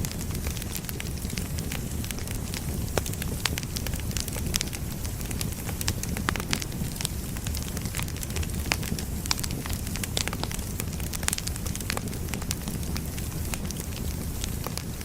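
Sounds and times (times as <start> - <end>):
fire crackling and popping: 0.0 - 15.0
firewood burning rumble: 0.0 - 15.0.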